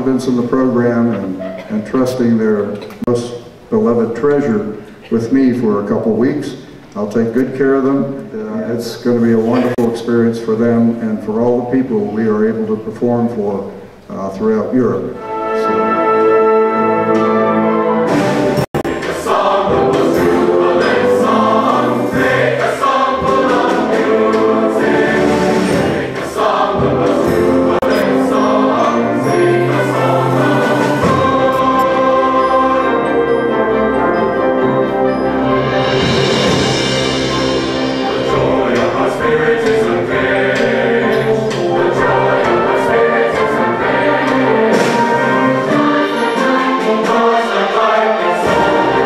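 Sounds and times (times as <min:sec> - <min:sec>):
choir singing: 0:08.5 - 0:10.0, 0:15.2 - 0:49.0.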